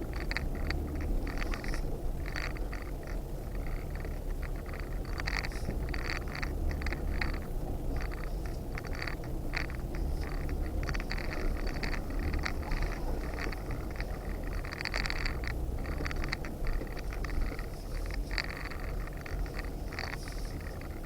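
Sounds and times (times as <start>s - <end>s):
off-road vehicle engine rumble: 0.0s - 21.0s
vehicle rattles and scrapes: 0.0s - 21.0s.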